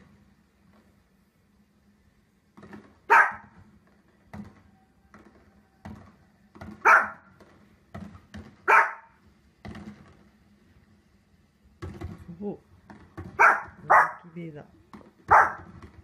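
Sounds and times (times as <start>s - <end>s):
dog barking: 3.1s - 3.5s, 6.8s - 7.3s, 8.6s - 9.2s, 13.4s - 14.3s, 15.3s - 15.7s.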